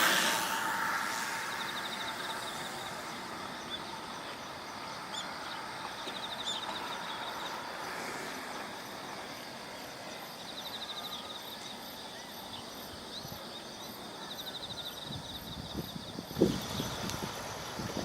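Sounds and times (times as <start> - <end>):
outdoor rushing noise: 0.0 - 5.9.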